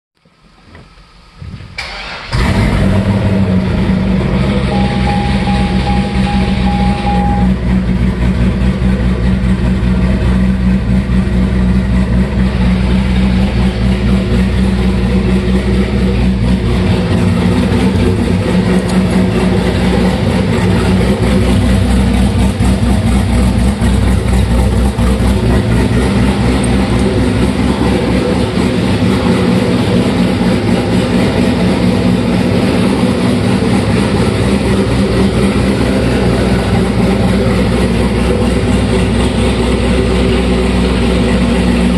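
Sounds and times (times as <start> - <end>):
car engine idling: 0.2 - 41.9
warning chime short beeps: 4.7 - 7.6.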